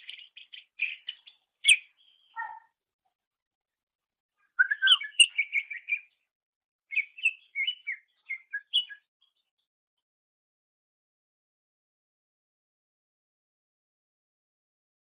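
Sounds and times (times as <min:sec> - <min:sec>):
bird chirping and whistling: 0:00.8 - 0:02.6, 0:04.6 - 0:06.1, 0:06.9 - 0:09.0.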